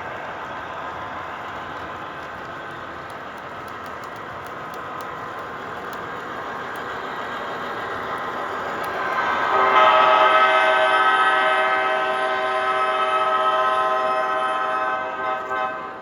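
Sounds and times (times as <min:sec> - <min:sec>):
locomotive horn: 0:09.2 - 0:16.0.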